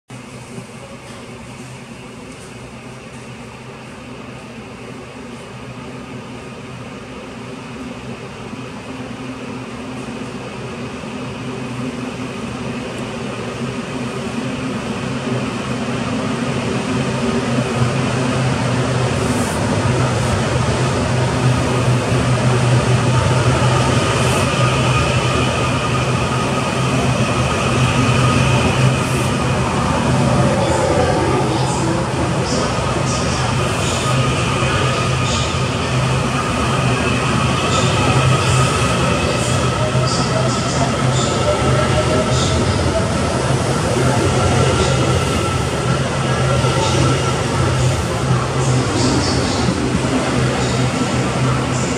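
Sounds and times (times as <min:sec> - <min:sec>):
train running hum and motor whine: 0:00.1 - 0:51.9.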